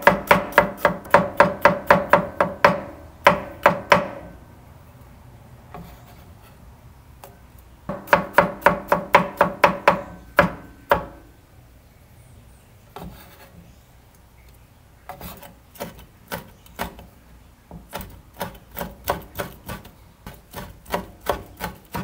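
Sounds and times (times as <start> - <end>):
knife chopping on wooden board: 0.0 - 4.2, 7.9 - 11.2, 15.1 - 17.1, 17.7 - 22.0.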